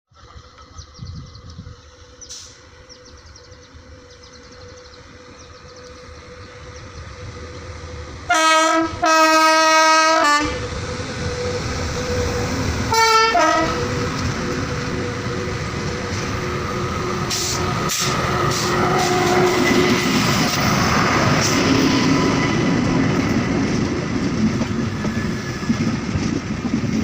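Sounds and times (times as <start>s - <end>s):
train rumble: 0.2s - 27.0s
locomotive horn blasts: 8.3s - 10.7s, 11.4s - 14.3s.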